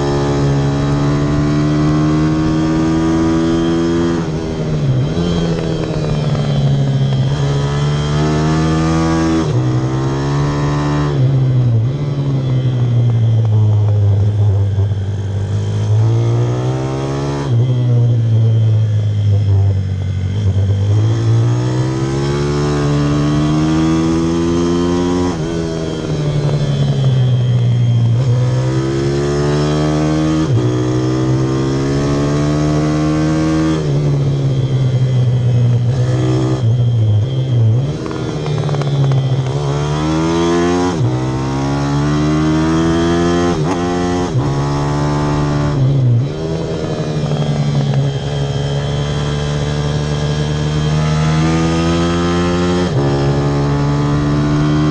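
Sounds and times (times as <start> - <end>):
pit bike engine revving: 28.0 - 54.9.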